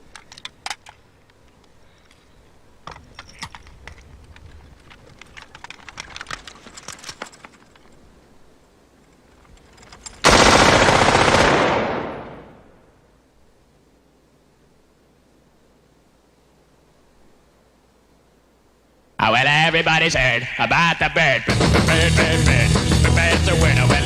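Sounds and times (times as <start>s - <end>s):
automatic gunfire burst: 10.2s - 12.6s
sharp gunshots: 10.2s - 12.8s.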